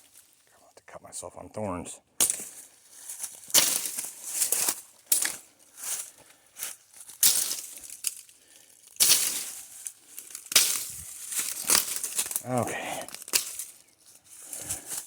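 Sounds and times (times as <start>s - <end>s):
machete hacking through brush: 2.2s - 6.1s, 7.1s - 8.2s, 9.0s - 15.0s
cut vegetation rustling: 2.2s - 15.0s.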